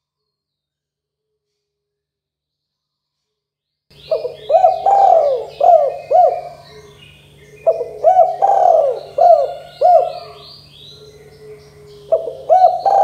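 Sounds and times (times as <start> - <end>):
small birds chirping: 3.9 - 13.0
dove cooing: 4.1 - 13.0.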